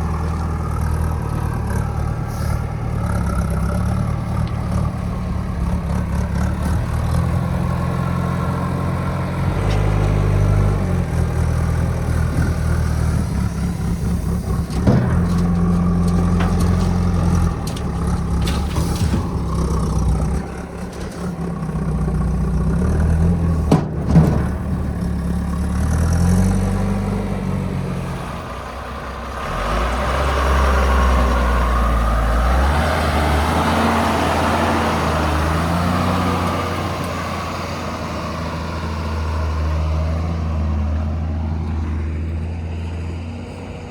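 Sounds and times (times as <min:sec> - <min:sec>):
diesel engine working: 0:00.0 - 0:43.9.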